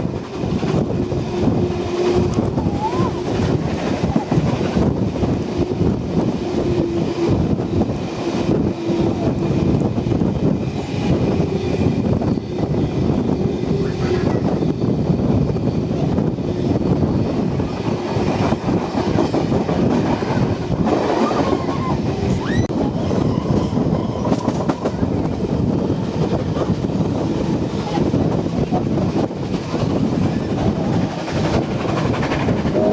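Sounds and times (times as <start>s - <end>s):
train wheels clattering on rail: 0.0s - 32.9s
rising wheel squeal: 21.2s - 24.6s.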